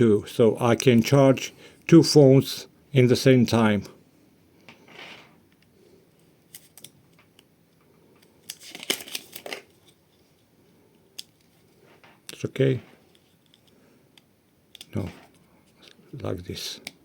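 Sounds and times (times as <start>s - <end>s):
plastic crinkling: 8.2s - 10.0s.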